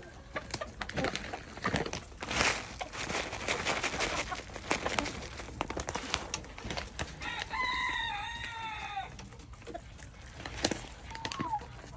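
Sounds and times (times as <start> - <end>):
chickens pecking taps: 0.0 - 11.9
rooster crowing: 7.2 - 9.2.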